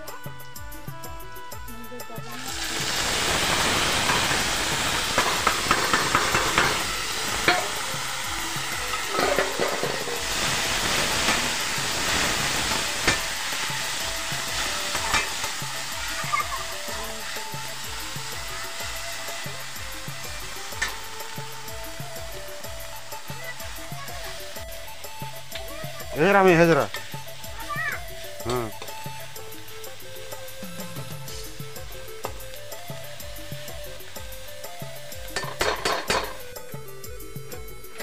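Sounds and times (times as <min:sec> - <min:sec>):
prawns sizzling in hot oil: 0:00.0 - 0:38.0
ladle scraping a wok: 0:02.4 - 0:16.4, 0:20.4 - 0:21.4
ladle tapping a pan: 0:02.4 - 0:19.8, 0:20.4 - 0:23.7, 0:26.8 - 0:27.4, 0:28.4 - 0:29.0, 0:35.2 - 0:36.5.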